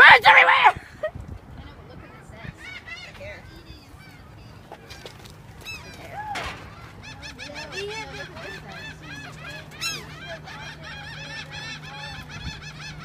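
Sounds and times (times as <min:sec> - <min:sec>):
gulls squawking: 0:02.4 - 0:13.0
steady low hum: 0:05.4 - 0:13.0.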